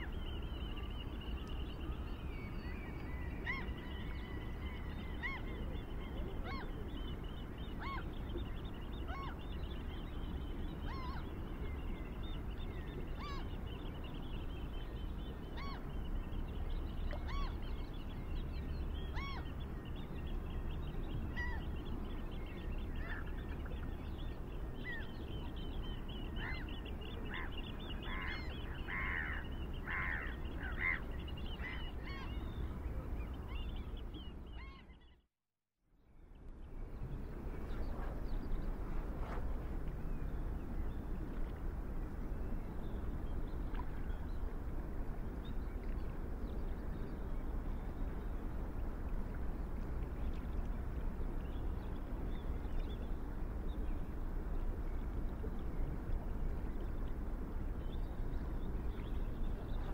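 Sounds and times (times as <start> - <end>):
steady low rumble: 36.0 - 59.9.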